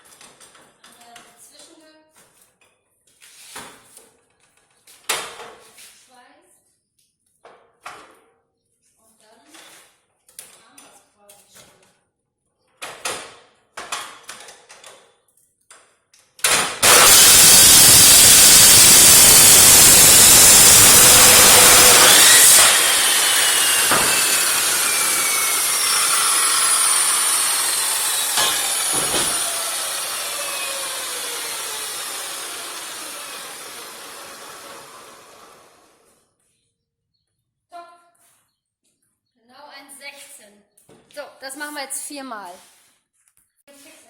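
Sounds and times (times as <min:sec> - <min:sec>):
power saw cutting steel: 0:16.5 - 0:36.2
saw spinning down whine: 0:16.8 - 0:36.1
steel knocks: 0:28.3 - 0:29.5.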